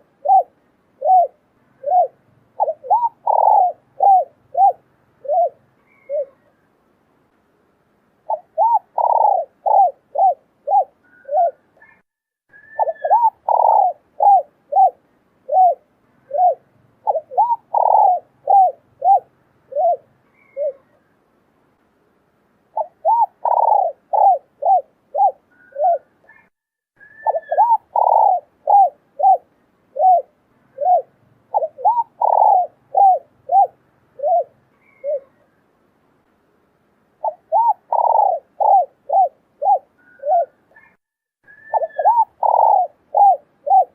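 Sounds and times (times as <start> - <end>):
dove cooing: 0.0 - 6.6, 8.2 - 21.1, 22.7 - 35.6, 37.2 - 43.9.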